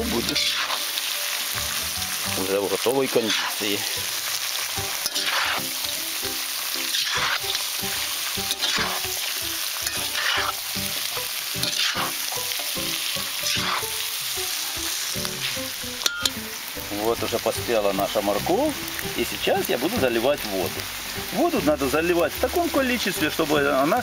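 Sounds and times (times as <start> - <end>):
food sizzling in hot oil: 0.0 - 24.0
spatula stirring: 0.2 - 0.8, 4.8 - 6.1, 6.8 - 14.1.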